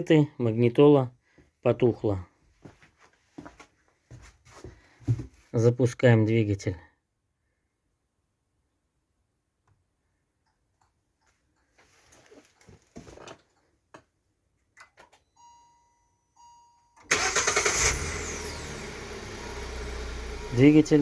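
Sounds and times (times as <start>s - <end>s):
car engine starting and idling: 17.0s - 21.0s.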